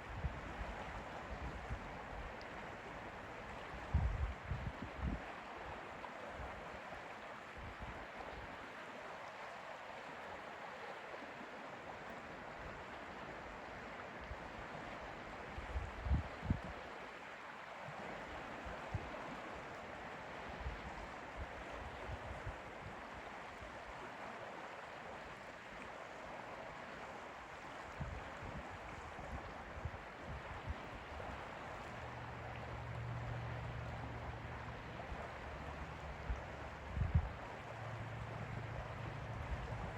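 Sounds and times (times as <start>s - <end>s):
gentle lapping water: 0.0s - 39.9s.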